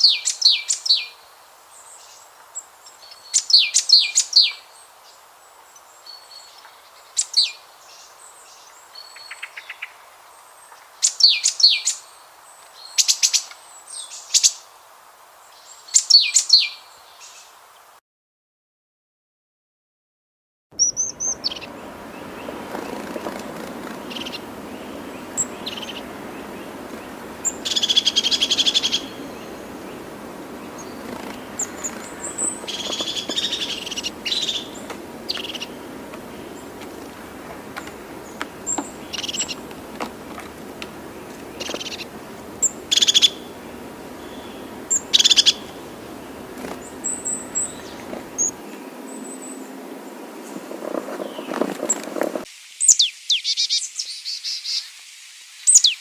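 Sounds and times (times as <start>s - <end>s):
low outdoor background: 20.7s - 52.5s
bird trills: 20.8s - 48.6s
birds chirping: 20.8s - 52.2s.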